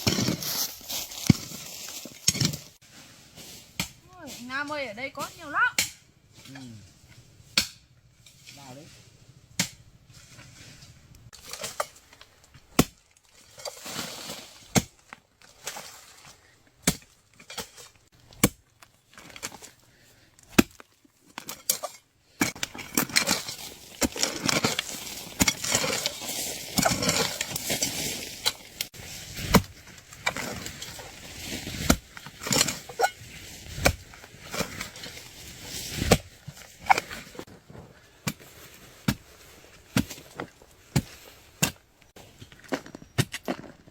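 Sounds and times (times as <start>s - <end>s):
digging tool chopping soil: 0.0s - 1.6s, 3.7s - 4.0s, 7.5s - 7.9s, 11.3s - 15.1s, 16.8s - 19.8s, 20.4s - 37.5s, 38.2s - 41.9s
earth and plants rustling: 0.0s - 43.9s.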